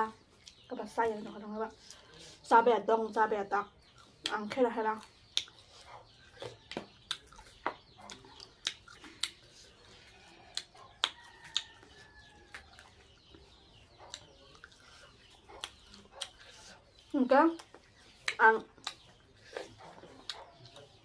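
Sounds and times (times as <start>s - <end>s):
person chewing food: 0.2s - 0.7s, 3.8s - 4.3s, 5.0s - 21.0s
wet mouth clicks and lip smacks: 5.0s - 5.6s, 6.7s - 9.5s, 10.5s - 11.7s, 17.6s - 19.1s.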